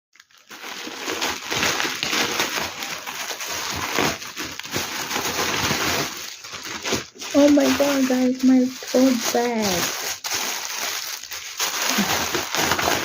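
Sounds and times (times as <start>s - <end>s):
plastic packaging crinkling: 0.1s - 13.0s.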